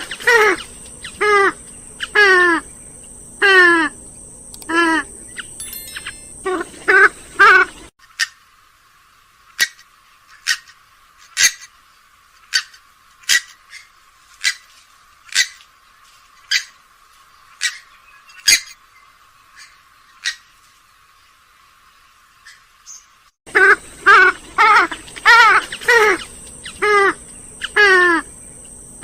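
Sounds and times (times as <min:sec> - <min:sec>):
bird giving sharp calls: 0:23.5 - 0:28.3.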